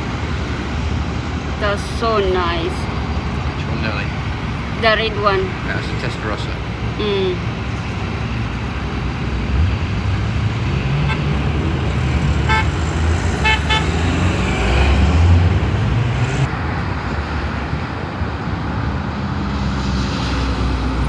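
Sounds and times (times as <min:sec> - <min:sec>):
car engine: 0:00.0 - 0:21.0
road rumble: 0:00.0 - 0:21.0.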